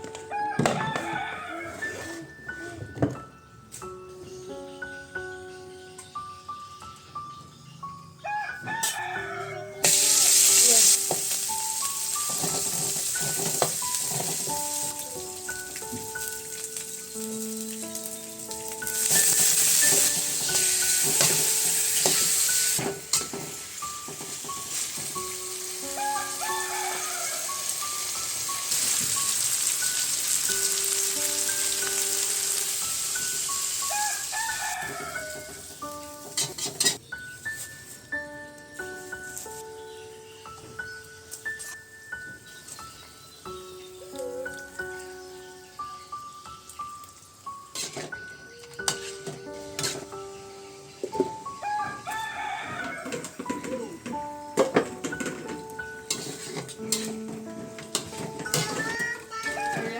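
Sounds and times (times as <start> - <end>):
light background music: 0.0 - 59.9
rooster crowing: 0.3 - 2.0, 8.2 - 9.8, 25.9 - 27.6, 33.8 - 35.6, 51.6 - 54.0
food frying in hot oil: 9.9 - 35.4, 56.1 - 57.1.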